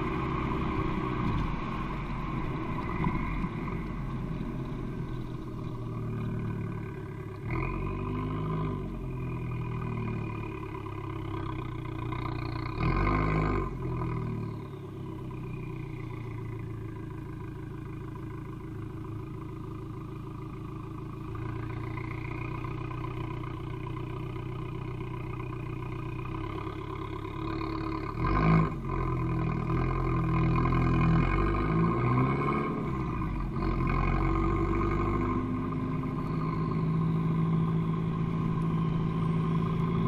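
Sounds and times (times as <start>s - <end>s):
car engine idling and revving: 0.0s - 40.0s.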